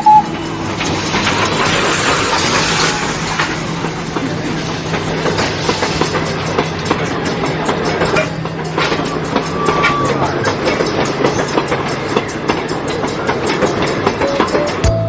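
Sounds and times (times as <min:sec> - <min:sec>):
ride train hum: 0:00.0 - 0:15.0
train cars rattling: 0:00.0 - 0:15.0.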